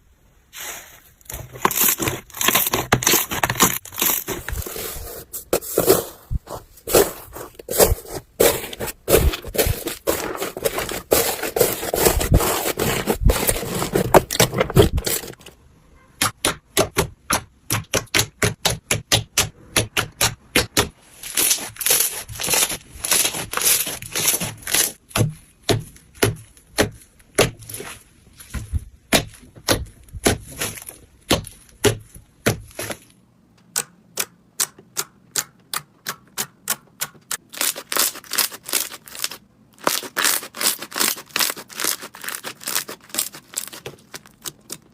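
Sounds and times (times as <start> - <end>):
slime crackling: 37.4 - 44.9.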